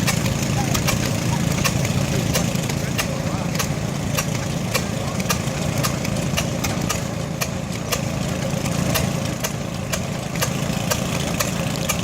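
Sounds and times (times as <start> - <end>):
sharp clicks: 0.0 - 8.1
engine idling: 0.0 - 12.0.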